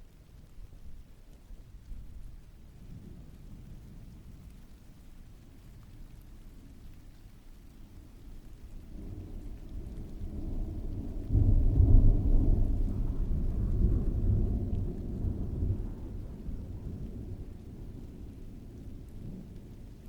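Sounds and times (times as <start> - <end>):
faint rain hiss: 0.0 - 20.0
distant thunder rumble: 8.0 - 20.0.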